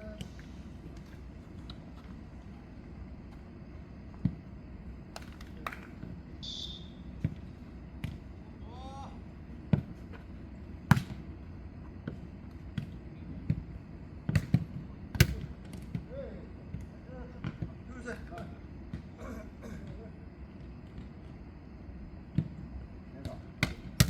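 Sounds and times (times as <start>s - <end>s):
high whistle-like tone: 6.4s - 7.1s
player calling: 6.4s - 7.2s
ball kicked and bouncing: 10.9s - 11.2s.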